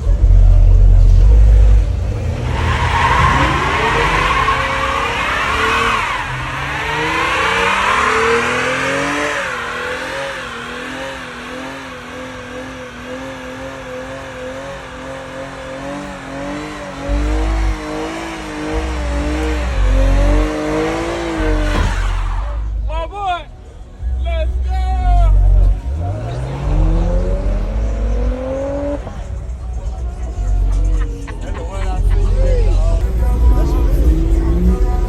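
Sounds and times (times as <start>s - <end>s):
car engine revving high: 0.0s - 22.9s, 25.0s - 29.5s.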